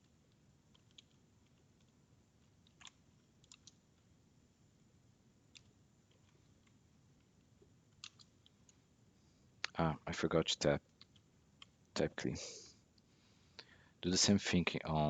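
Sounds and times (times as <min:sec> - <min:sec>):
computer keys and mouse clicks: 0:00.3 - 0:03.8, 0:05.5 - 0:08.8.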